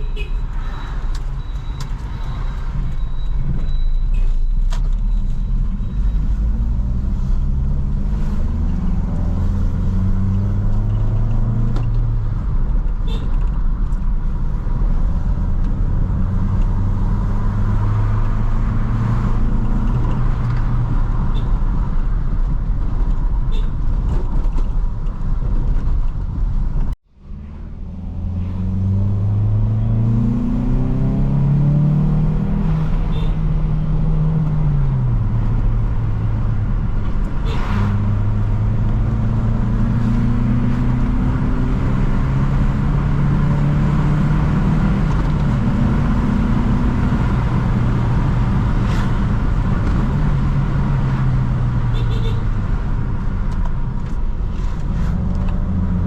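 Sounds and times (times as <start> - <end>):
road rumble: 0.0 - 56.0
car engine accelerating: 5.8 - 12.4, 26.8 - 52.0.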